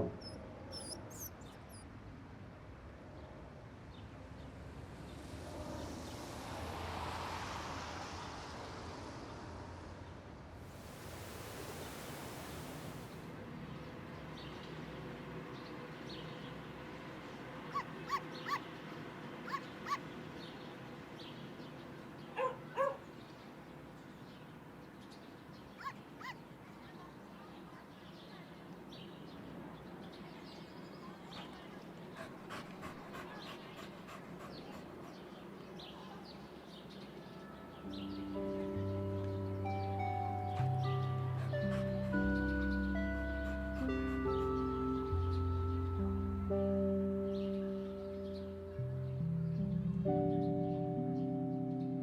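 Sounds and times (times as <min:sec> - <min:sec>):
dogs whimpering and yelping: 0:00.1 - 0:01.8, 0:40.4 - 0:45.1.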